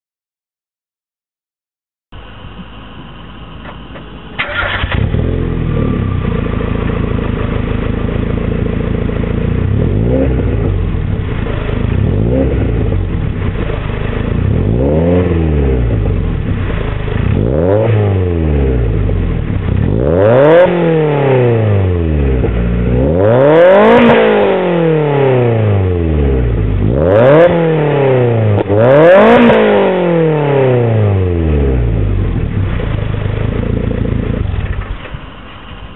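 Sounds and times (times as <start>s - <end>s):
car exhaust idling and revving: 2.1s - 35.9s.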